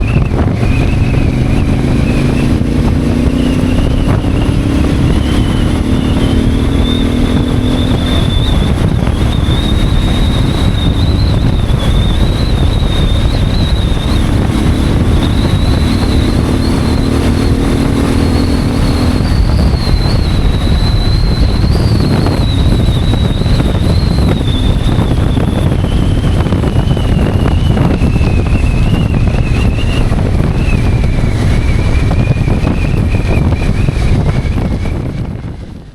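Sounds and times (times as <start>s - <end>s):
motorcycle engine accelerating: 0.0s - 35.9s
wind noise on microphone: 0.0s - 35.9s.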